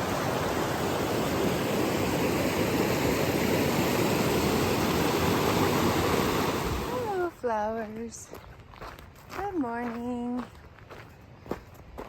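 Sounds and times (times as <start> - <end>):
creek water rushing: 0.0 - 7.4.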